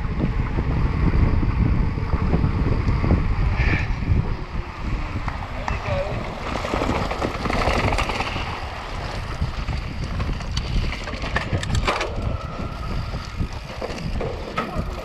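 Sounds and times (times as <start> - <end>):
bike rattling over rough ground: 0.0 - 15.0
wind buffeting microphone: 0.0 - 15.0
sharp clicks and clatters: 6.5 - 12.4.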